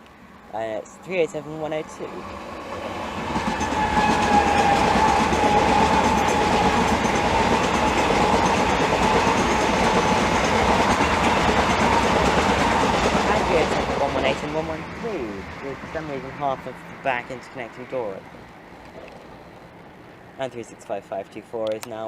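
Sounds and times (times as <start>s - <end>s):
wheel-on-rail noise: 0.0s - 20.4s
train motor whine: 2.0s - 14.6s.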